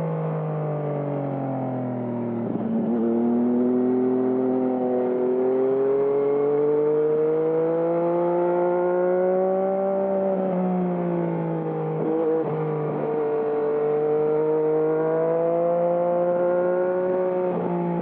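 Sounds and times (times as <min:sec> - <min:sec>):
motorcycle engine accelerating: 0:02.4 - 0:18.0.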